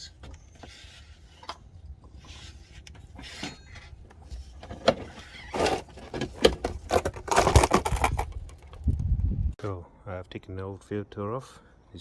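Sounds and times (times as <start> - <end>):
clicks and knocks of parts: 2.8 - 9.0.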